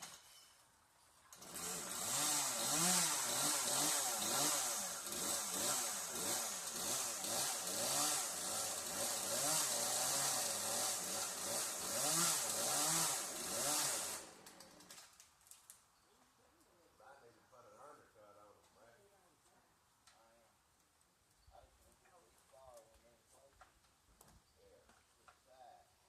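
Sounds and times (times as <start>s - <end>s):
chainsaw engine revving: 1.3s - 15.0s.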